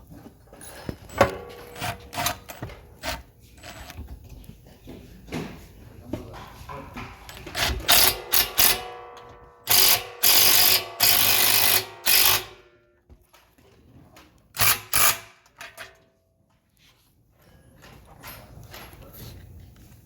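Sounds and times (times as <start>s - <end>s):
power driver driving screws into metal: 1.1s - 4.0s, 7.4s - 9.0s, 9.7s - 12.6s, 14.6s - 15.8s.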